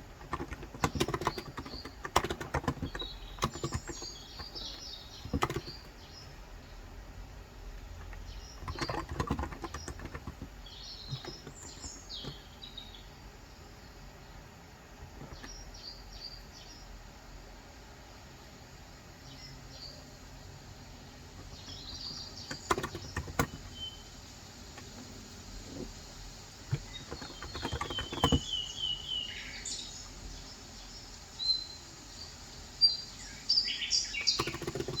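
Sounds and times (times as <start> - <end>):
rapid keyboard keystrokes: 0.0 - 6.0, 7.8 - 12.5, 15.1 - 15.6, 21.4 - 23.8, 26.6 - 28.7, 34.1 - 35.0
low background hum: 0.0 - 35.0.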